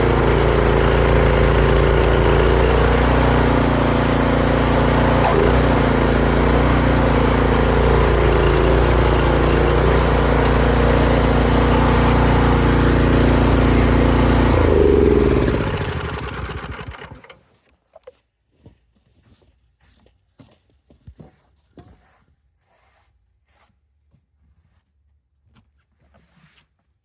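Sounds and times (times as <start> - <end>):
small engine winding down: 0.0 - 17.4.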